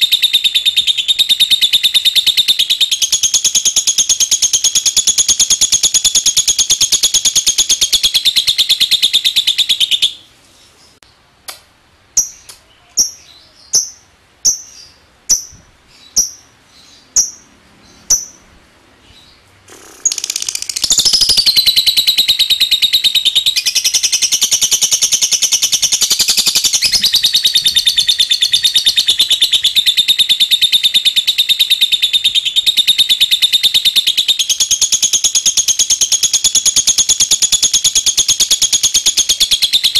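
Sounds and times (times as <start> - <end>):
lovebird chattering trill: 0.0 - 10.3, 12.2 - 18.5, 19.1 - 39.9
lovebird short chirps: 19.7 - 34.0.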